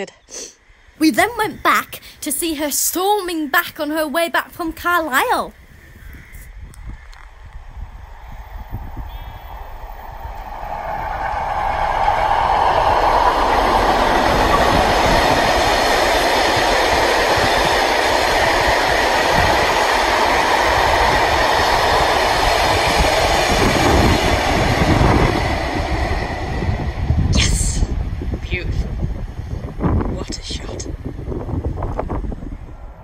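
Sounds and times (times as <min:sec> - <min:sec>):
diesel locomotive rumble: 0:06.2 - 0:33.0
train wheels rushing on rails: 0:06.8 - 0:33.0.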